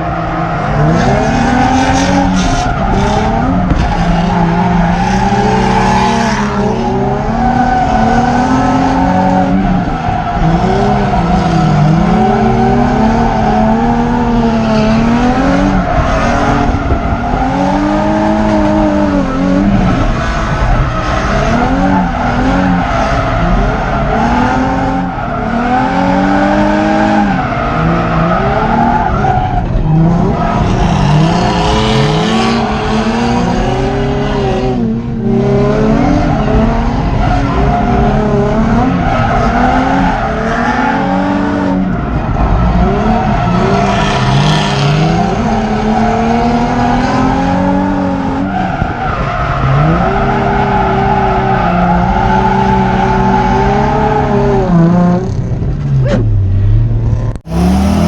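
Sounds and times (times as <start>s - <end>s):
tyres squealing and skidding: 0.0s - 34.7s, 35.8s - 54.8s
car engine revving hard: 0.7s - 56.4s, 57.1s - 58.0s.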